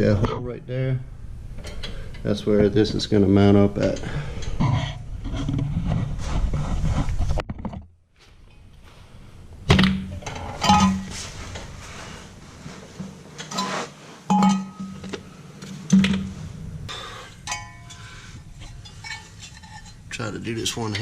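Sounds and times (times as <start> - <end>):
steel plates clanking: 10.1 - 11.2, 13.4 - 15.1, 16.9 - 21.0
light metal clinks: 17.4 - 19.9.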